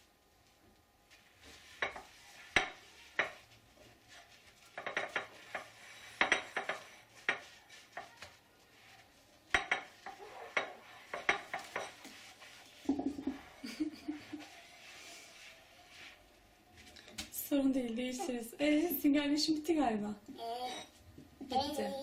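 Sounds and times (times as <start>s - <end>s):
dishes and cutlery clinking: 1.7s - 3.5s, 4.6s - 8.2s, 9.5s - 13.9s.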